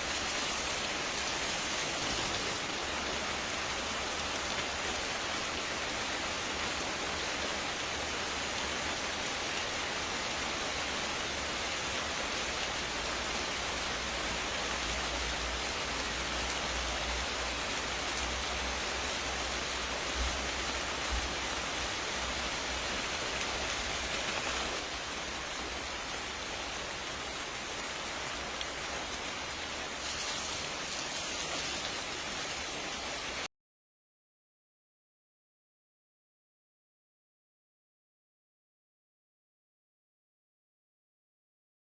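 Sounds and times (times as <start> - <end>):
rain-like hiss: 0.0 - 33.5.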